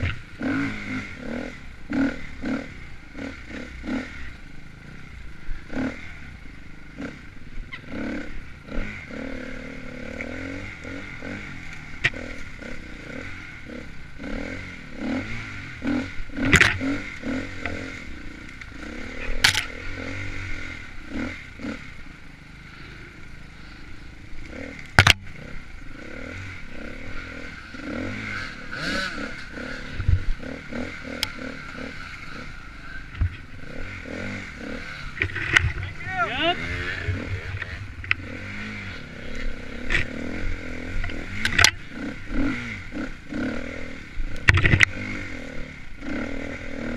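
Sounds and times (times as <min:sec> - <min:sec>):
dirt bike engine revving: 0:00.0 - 0:46.9
clatter: 0:16.4 - 0:17.0, 0:18.5 - 0:19.9, 0:24.8 - 0:25.3, 0:35.0 - 0:35.8, 0:40.9 - 0:43.1, 0:44.3 - 0:45.2.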